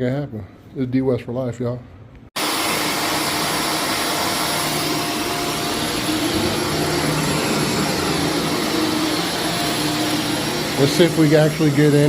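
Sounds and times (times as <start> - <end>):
vacuum cleaner running on carpet: 2.4 - 12.0.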